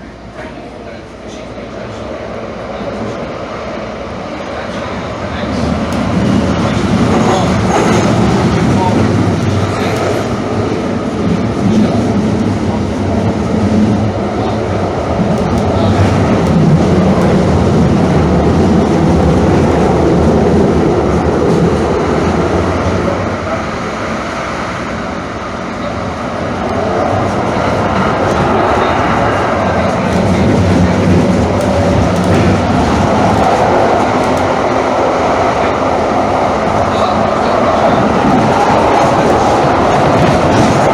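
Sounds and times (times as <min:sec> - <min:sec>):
train wheels rumbling: 0:00.0 - 0:40.9.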